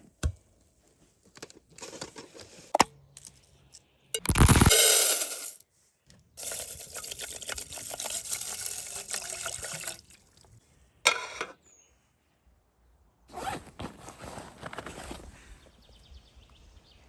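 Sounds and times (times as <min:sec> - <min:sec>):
brief noisy burst: 0:04.2 - 0:04.9
water pouring: 0:06.4 - 0:10.5.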